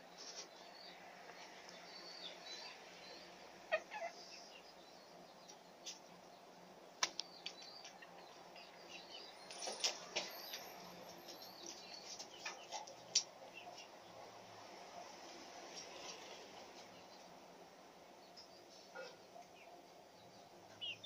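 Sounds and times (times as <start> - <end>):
faint small birds chirping: 0.0 - 14.4, 15.1 - 21.0.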